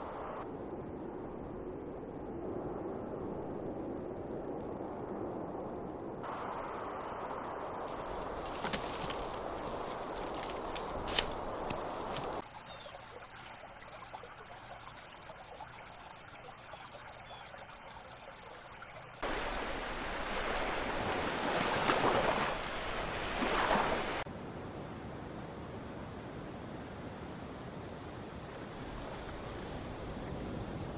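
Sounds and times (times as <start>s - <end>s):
rushing water: 7.9s - 17.2s, 17.8s - 24.2s.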